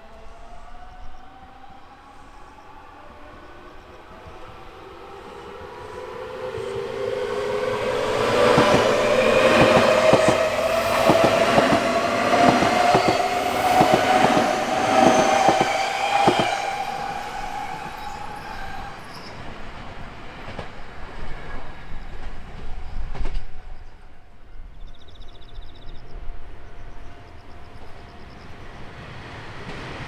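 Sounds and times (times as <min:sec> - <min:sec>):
wheels clacking over rail joints: 0:07.6 - 0:16.6.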